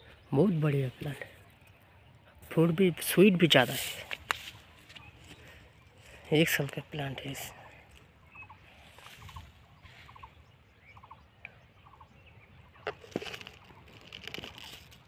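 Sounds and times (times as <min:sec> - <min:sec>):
leaves brushing microphone: 0:03.3 - 0:05.4, 0:08.7 - 0:10.3, 0:12.8 - 0:15.0.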